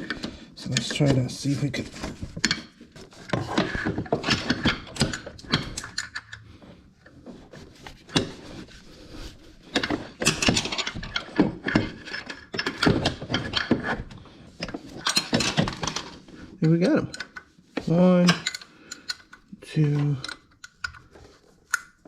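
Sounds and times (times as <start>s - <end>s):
hand tools clanking on bolts: 0.0s - 6.4s, 9.7s - 21.9s.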